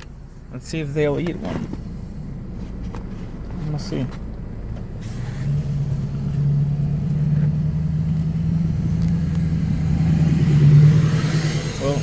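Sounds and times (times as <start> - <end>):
passing truck engine drone: 5.0 - 12.0.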